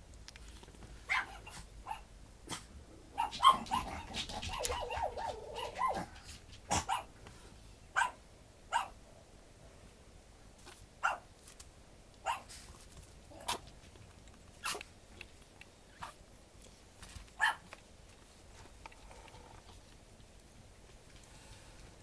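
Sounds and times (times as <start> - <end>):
puppies yipping: 3.2 - 6.1
puppy whining: 3.2 - 6.3.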